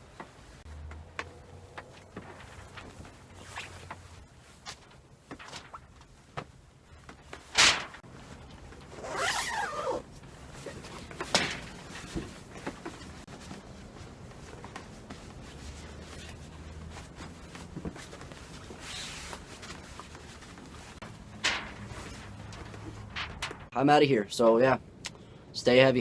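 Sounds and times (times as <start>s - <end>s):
zipper pulled: 9.0s - 10.1s.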